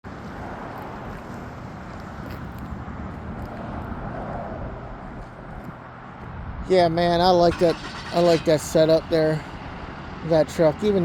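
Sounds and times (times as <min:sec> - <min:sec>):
vehicle engine running: 0:07.3 - 0:11.0.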